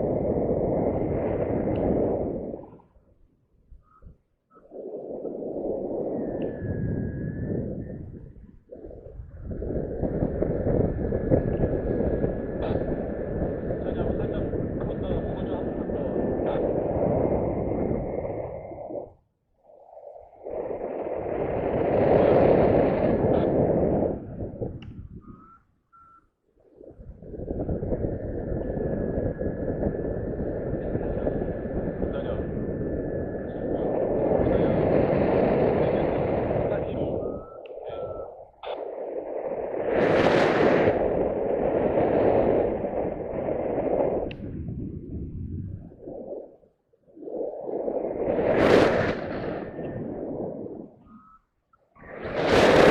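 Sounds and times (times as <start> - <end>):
wind rushing over microphone: 0.0 - 52.9
short high beeps: 25.2 - 26.3.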